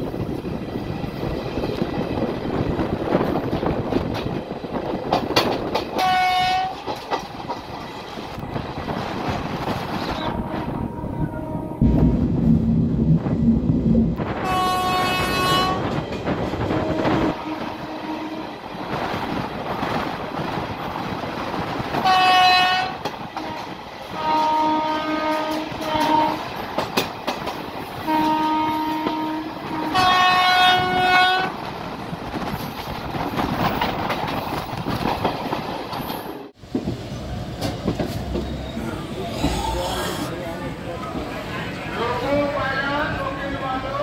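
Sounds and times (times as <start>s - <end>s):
train rumbling on rails: 0.0s - 44.0s
locomotive horn blasts: 6.0s - 6.8s, 10.2s - 12.2s, 14.4s - 15.9s, 16.8s - 18.4s, 22.0s - 23.6s, 24.2s - 26.4s, 28.1s - 31.5s.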